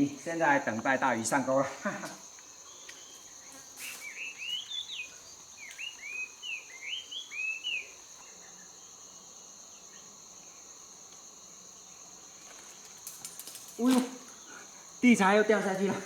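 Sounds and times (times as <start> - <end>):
insect drone: 0.0 - 16.0
bird whistling song: 3.8 - 8.0.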